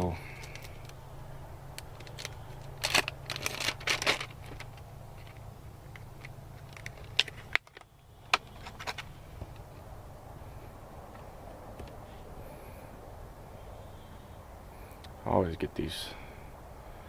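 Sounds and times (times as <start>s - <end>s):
fishing tackle rustling: 0.0s - 1.0s, 1.8s - 9.6s
steady low hum: 0.0s - 17.0s.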